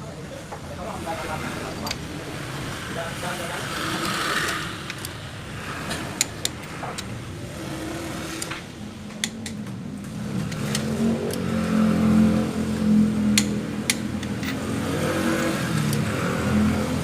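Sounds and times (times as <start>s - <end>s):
sharp clicks and knocks: 5.8s - 7.2s, 8.3s - 11.5s, 13.3s - 14.7s.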